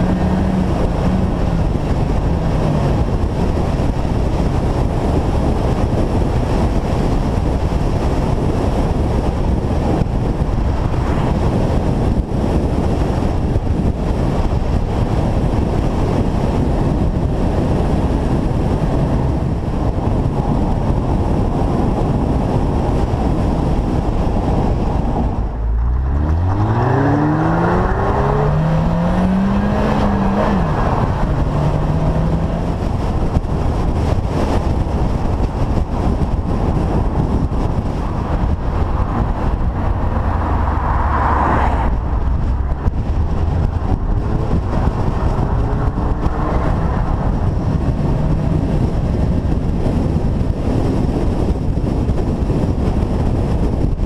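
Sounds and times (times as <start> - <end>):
car engine accelerating: 0.0 - 7.1, 23.0 - 51.7
wind and road noise: 0.0 - 54.0.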